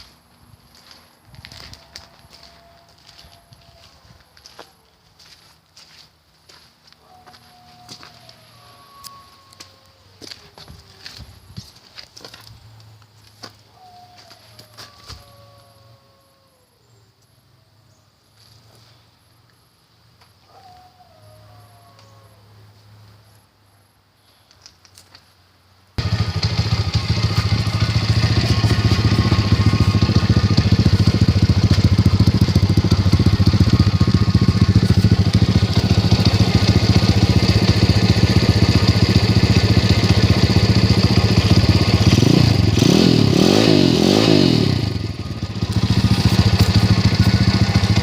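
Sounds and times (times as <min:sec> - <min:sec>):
dirt bike engine running and revving: 0:26.0 - 0:48.0.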